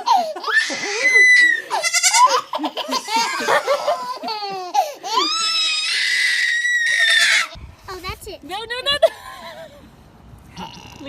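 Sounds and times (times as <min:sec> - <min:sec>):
child laughing and squealing: 0:00.1 - 0:07.6.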